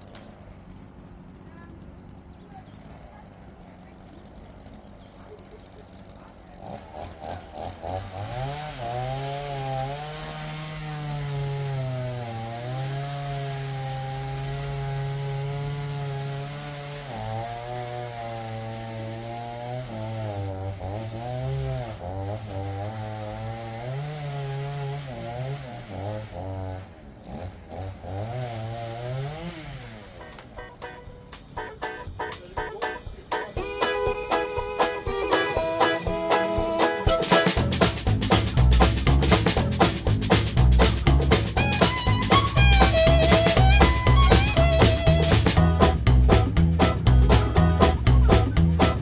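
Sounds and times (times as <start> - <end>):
chainsaw cutting logs: 0.0 - 49.0.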